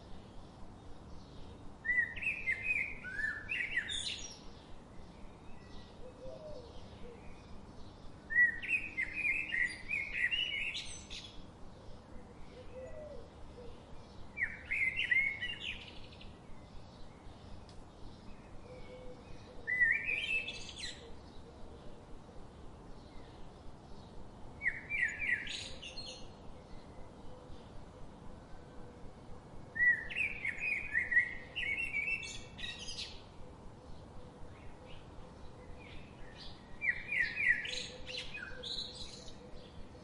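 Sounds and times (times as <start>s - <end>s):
soft outdoor hiss: 0.0s - 40.0s
songbird singing: 0.0s - 40.0s
faint bird chirps: 1.2s - 21.9s.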